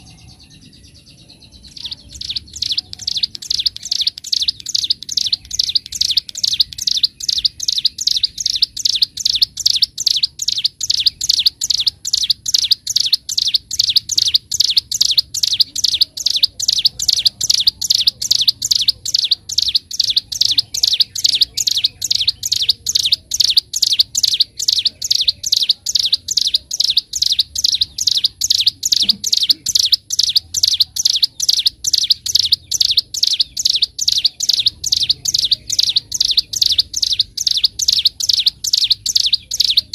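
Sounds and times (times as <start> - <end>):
songbird rapid high notes: 1.5 - 39.9.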